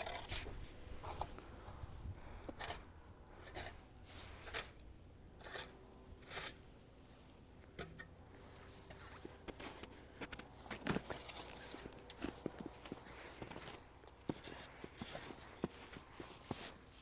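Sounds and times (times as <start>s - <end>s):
faint footsteps: 8.5s - 16.9s.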